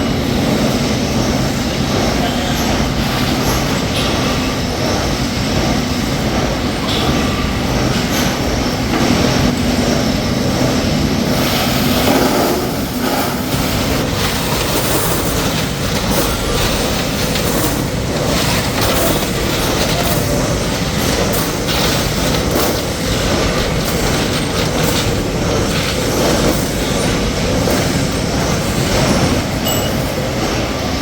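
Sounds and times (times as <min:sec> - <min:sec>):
metalworking machinery rumble: 0:00.0 - 0:31.0
metallic clatter: 0:13.0 - 0:30.2.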